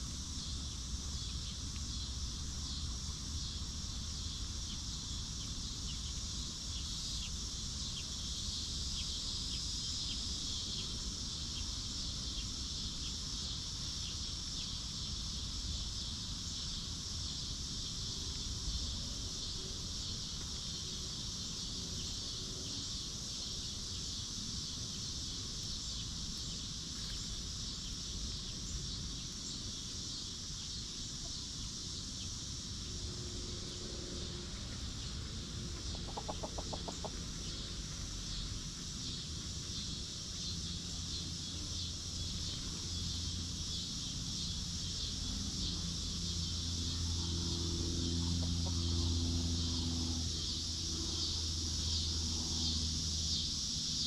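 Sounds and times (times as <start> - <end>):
high-pitched insect buzz: 0.0 - 35.2, 35.8 - 54.0
hens clucking: 35.8 - 37.2.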